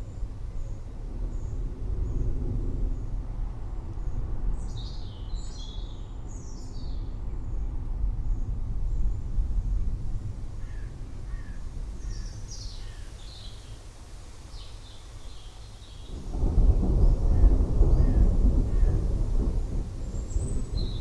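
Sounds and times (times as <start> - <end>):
rolling thunder rumbling: 16.0 - 21.0.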